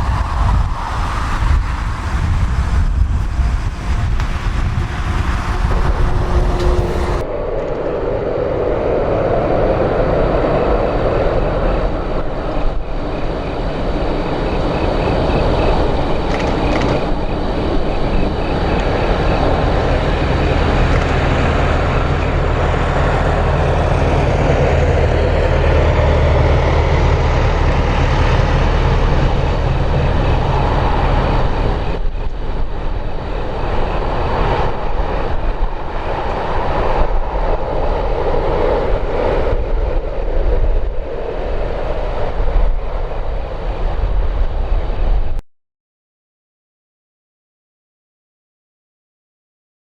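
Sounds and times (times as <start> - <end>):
jet engines whining: 0.0 - 7.4, 9.8 - 41.9
wind rumbling on microphone: 0.0 - 45.4.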